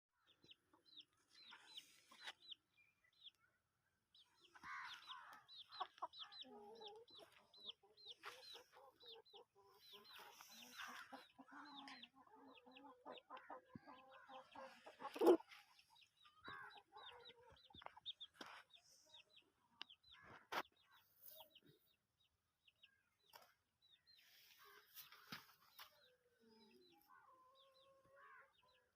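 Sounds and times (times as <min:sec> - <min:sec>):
chickens clucking softly: 0:04.2 - 0:22.0.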